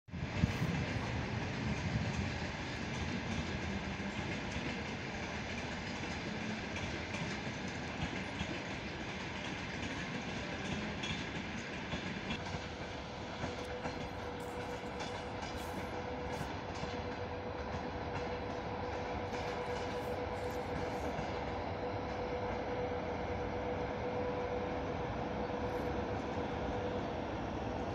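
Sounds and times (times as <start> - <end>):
train rumbling on rails: 0.1 - 27.9
thin steady whine: 12.4 - 27.9.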